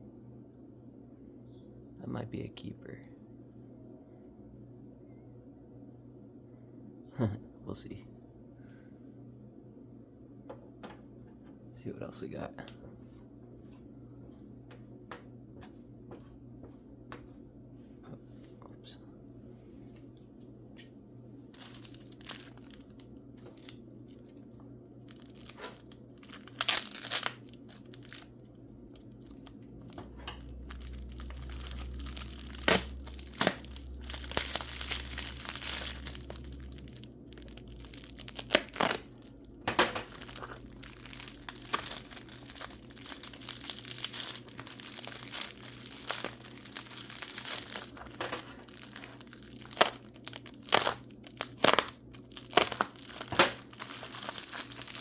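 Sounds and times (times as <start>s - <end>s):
paper crumpling and tearing: 21.6s - 24.4s, 25.0s - 55.0s.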